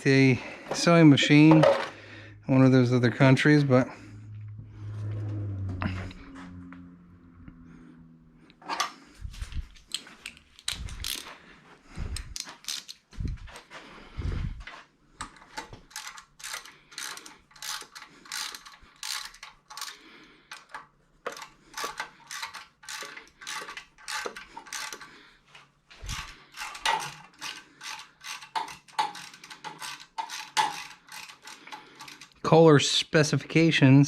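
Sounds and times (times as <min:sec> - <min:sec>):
ratchet wrench clicking: 0:10.6 - 0:11.2, 0:12.2 - 0:13.0, 0:15.9 - 0:25.1, 0:26.0 - 0:32.4.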